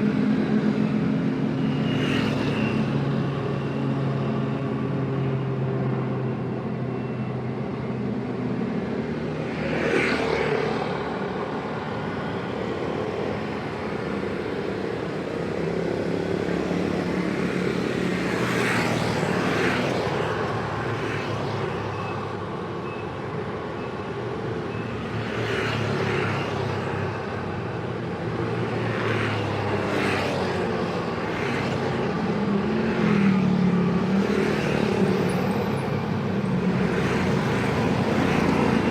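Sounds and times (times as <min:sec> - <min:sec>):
vehicles revving and passing: 0:25.0 - 0:38.9.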